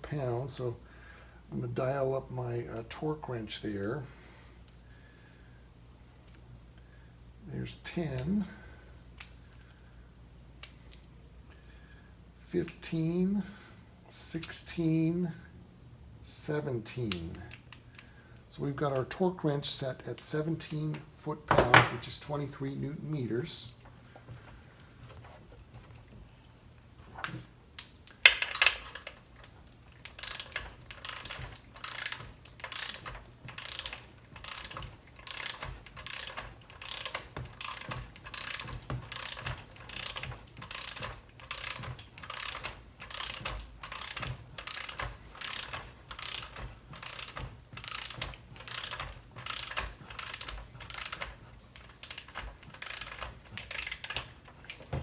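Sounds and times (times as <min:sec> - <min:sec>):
ratchet wrench clicking: 0:28.1 - 0:54.9.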